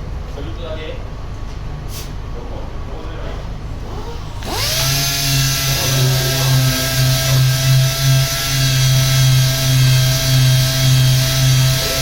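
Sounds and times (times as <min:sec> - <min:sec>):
power sander running: 0:03.7 - 0:12.0.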